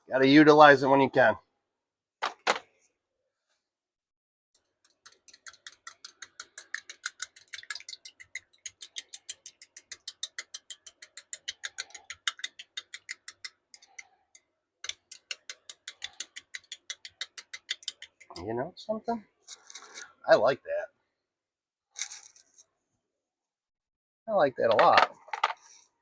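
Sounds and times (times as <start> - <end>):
utensil clicking against cup: 4.8 - 18.3.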